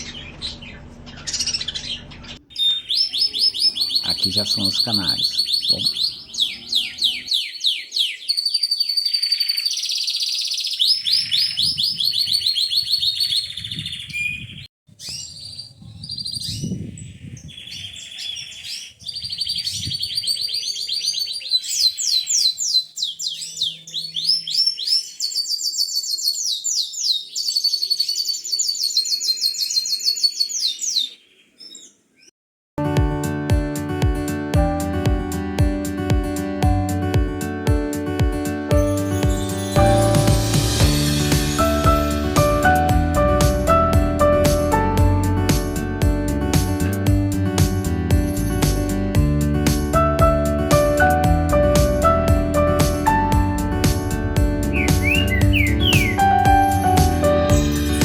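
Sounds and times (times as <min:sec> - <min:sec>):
canaries singing: 0:00.0 - 0:32.3, 0:50.8 - 0:58.0.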